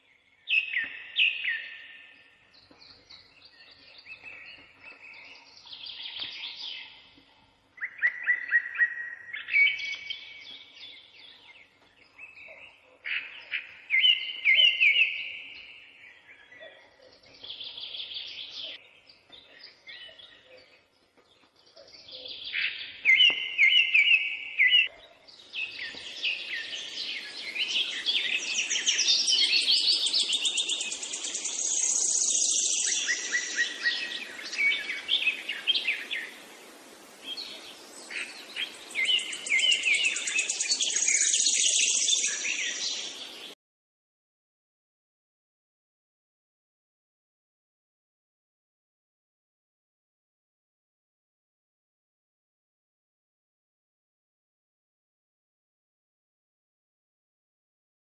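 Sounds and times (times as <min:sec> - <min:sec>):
songbird chirps and trills: 0:00.0 - 0:43.6
steady hiss: 0:26.0 - 0:43.5.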